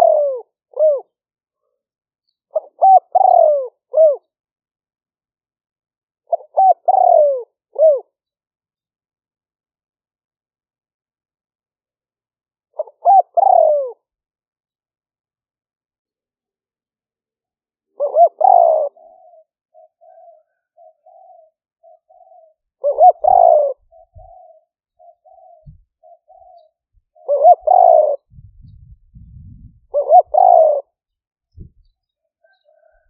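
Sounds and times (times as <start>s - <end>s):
dove cooing: 0.0s - 1.2s, 2.5s - 4.3s, 6.3s - 8.2s, 12.8s - 14.1s, 18.0s - 33.0s.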